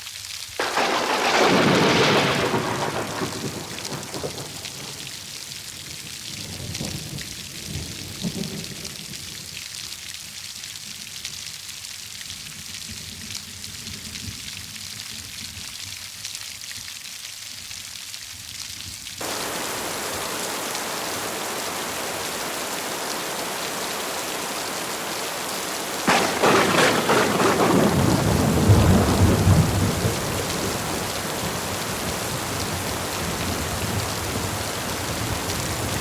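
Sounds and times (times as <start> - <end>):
heavy rain falling: 0.5 - 9.7, 19.2 - 36.0
thunder rolling: 0.6 - 5.1, 19.2 - 36.0.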